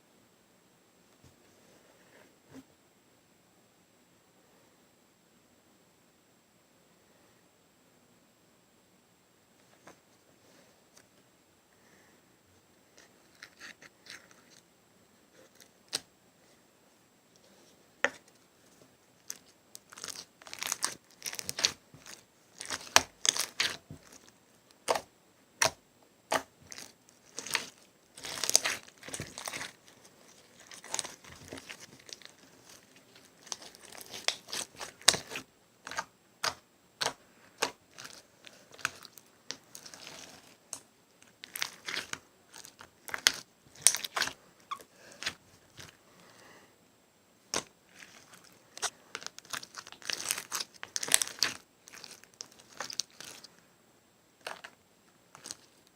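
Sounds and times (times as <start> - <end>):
slime squished by hand: 19.2 - 40.5, 41.4 - 46.0, 47.5 - 53.5.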